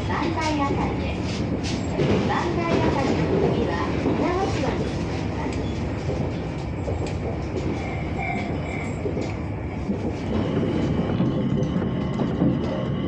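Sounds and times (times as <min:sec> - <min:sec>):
train running rumble: 0:00.0 - 0:13.0.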